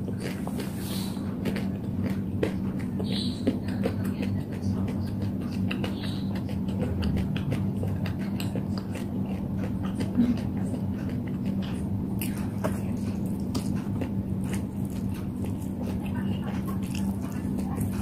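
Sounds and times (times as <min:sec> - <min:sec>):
low hum: 0:00.0 - 0:18.0
person chewing noodles: 0:00.0 - 0:18.0.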